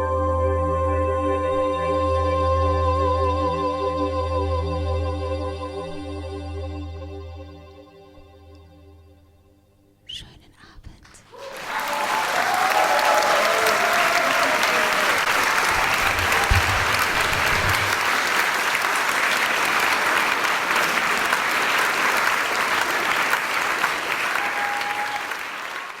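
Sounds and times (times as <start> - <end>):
audience applauding: 11.3 - 26.0.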